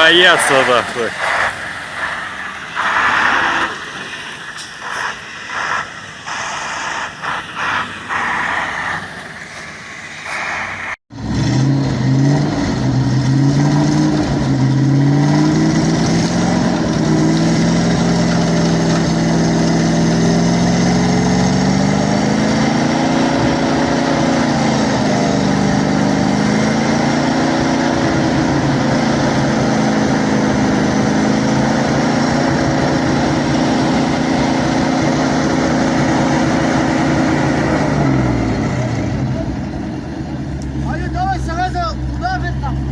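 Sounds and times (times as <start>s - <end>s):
truck engine running under load: 11.2s - 42.9s.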